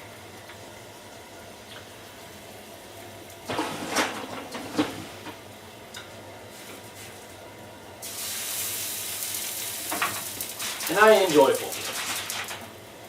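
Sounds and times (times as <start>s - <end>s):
food sizzling in a frying pan: 8.0s - 12.4s.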